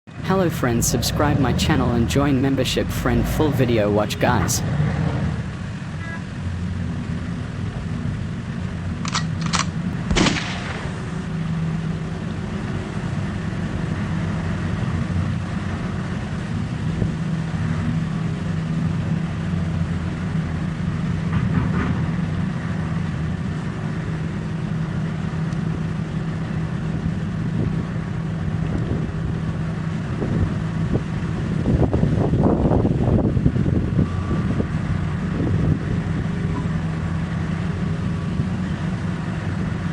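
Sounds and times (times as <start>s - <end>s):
diesel engine running: 0.1s - 4.6s.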